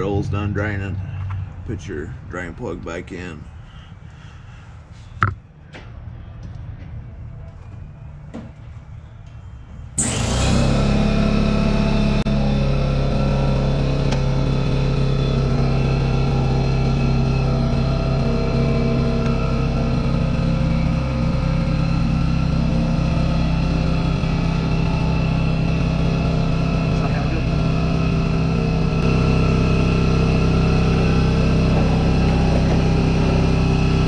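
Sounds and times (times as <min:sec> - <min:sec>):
engine idling: 0:10.0 - 0:34.0.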